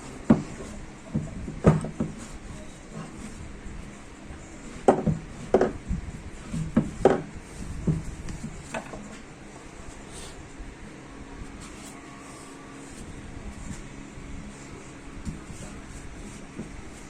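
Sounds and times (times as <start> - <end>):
tools knocking on workbench: 1.1 - 2.2, 4.8 - 5.8, 6.8 - 7.3.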